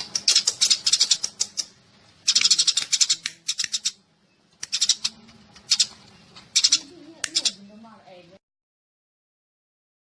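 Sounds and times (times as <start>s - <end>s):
sparrows chirping: 0.0s - 8.3s.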